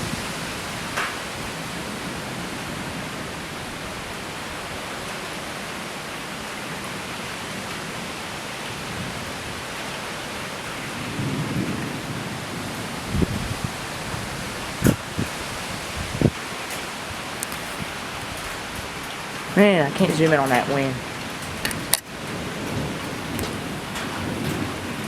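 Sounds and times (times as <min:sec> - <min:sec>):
rushing wind: 0:00.0 - 0:25.0
low thunder rumble: 0:10.7 - 0:16.4, 0:17.1 - 0:25.0.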